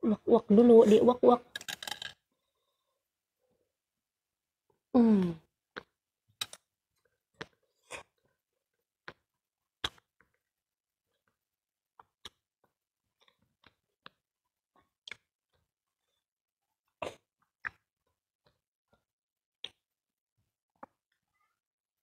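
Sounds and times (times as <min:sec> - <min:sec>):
chewing smacks and clicks: 0:09.8 - 0:10.4.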